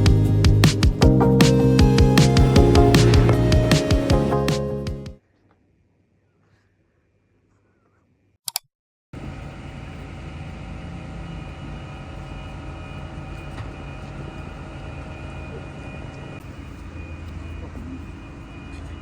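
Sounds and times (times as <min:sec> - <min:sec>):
mechanical drone with hum: 0:00.0 - 0:04.5, 0:09.2 - 0:19.0
sharp clicks: 0:08.5 - 0:08.7.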